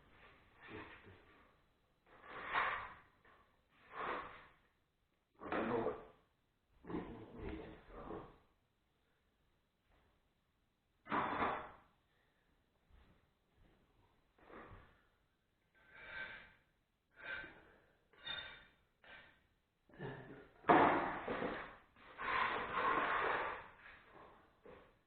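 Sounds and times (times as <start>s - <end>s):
grout scraped in container: 22.0s - 24.1s.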